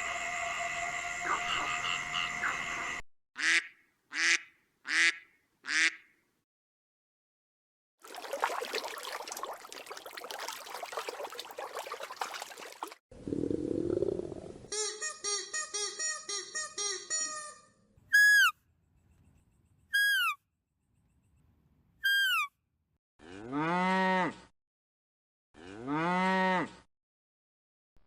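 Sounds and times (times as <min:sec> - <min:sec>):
short pitched calls: 0:18.1 - 0:18.6, 0:19.9 - 0:20.4, 0:22.0 - 0:22.5
cow mooing: 0:23.2 - 0:24.5, 0:25.6 - 0:26.8.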